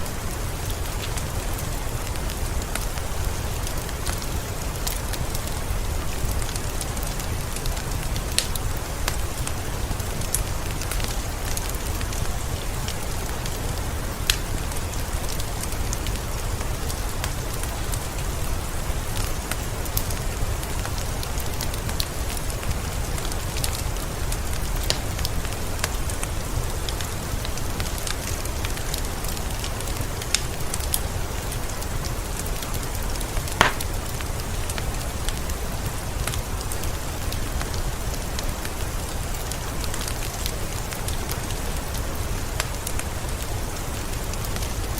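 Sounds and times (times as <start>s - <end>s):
wood fire crackling and popping: 0.0s - 20.0s, 20.6s - 44.9s
rain hissing: 0.0s - 44.9s.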